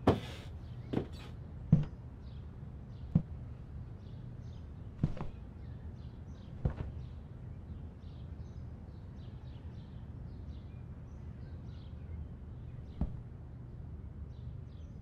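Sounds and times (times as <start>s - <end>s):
birds chirping faintly: 0.0s - 15.0s
low room rumble: 0.0s - 15.0s
sharp thump: 1.7s - 2.0s, 5.0s - 5.4s, 6.6s - 7.0s, 12.8s - 13.3s.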